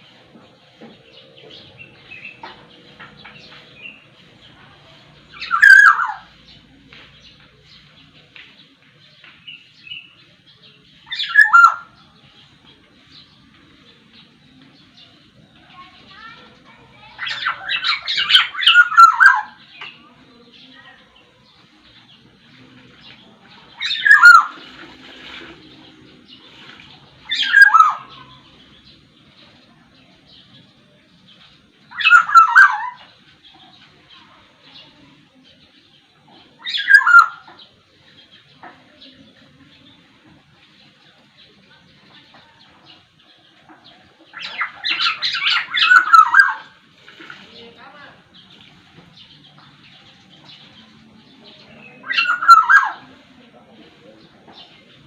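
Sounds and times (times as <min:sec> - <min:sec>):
bird singing: 0:00.0 - 0:55.0
bird whistling song: 0:05.4 - 0:06.3, 0:11.1 - 0:12.0, 0:17.2 - 0:19.9, 0:23.8 - 0:24.8, 0:27.2 - 0:28.5, 0:31.9 - 0:33.1, 0:36.6 - 0:37.5, 0:44.4 - 0:46.8, 0:51.7 - 0:53.2.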